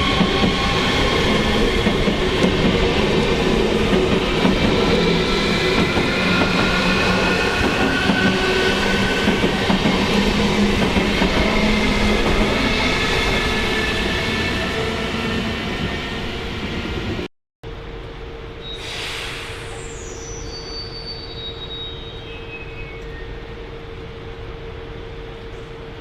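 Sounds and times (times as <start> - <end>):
train passing: 0.0 - 17.3.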